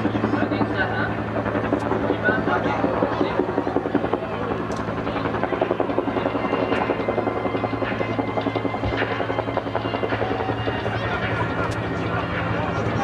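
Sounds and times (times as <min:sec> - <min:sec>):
helicopter rotor beating: 0:00.0 - 0:13.0.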